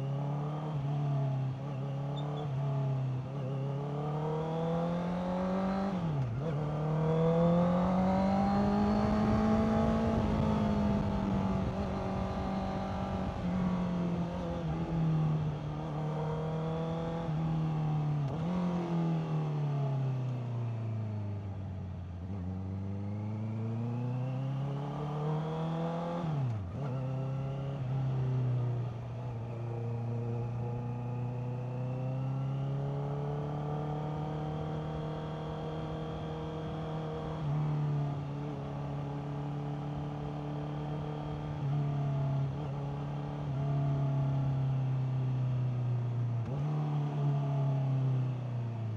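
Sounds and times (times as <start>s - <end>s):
motorcycle engine revving: 3.4s - 19.6s, 22.3s - 45.4s.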